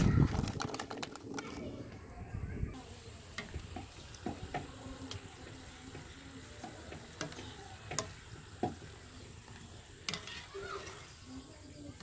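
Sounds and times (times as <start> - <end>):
frying in hot oil sizzle: 2.7 - 12.0.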